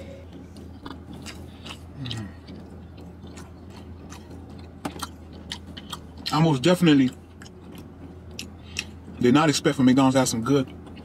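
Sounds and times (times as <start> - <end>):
person chewing pizza: 0.0 - 11.0
wet mouth clicks: 0.6 - 6.3.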